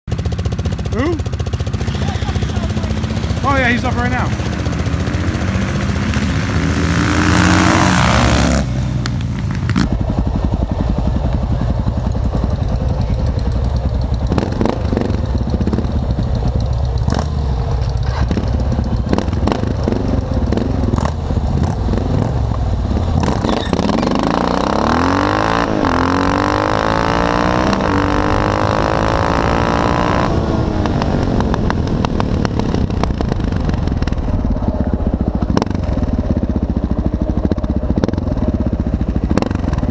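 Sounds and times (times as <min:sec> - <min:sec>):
motorcycle revving: 0:00.0 - 0:39.9
low engine rumble: 0:00.1 - 0:24.8, 0:30.3 - 0:39.9
motorcycle accelerating hard: 0:00.1 - 0:39.9.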